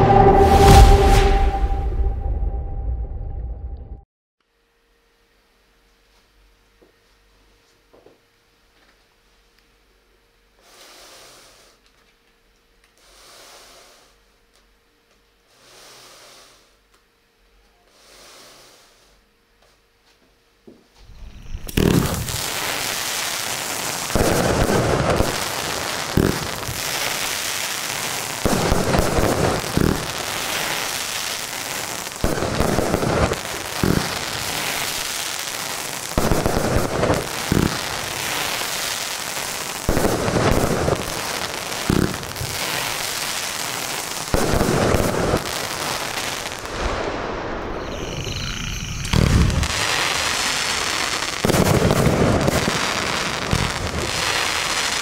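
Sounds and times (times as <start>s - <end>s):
dense firework crackle: 21.0s - 55.0s.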